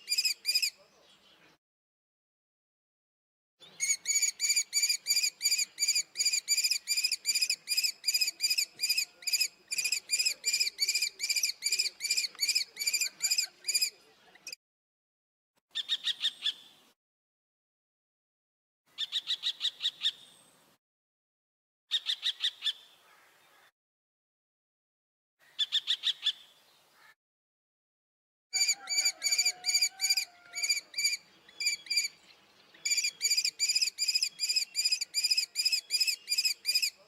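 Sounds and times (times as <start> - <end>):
kestrel high-pitched calls: 0.0 - 0.7, 3.8 - 13.9, 19.0 - 20.2, 21.9 - 22.8, 28.6 - 32.2, 32.8 - 37.0.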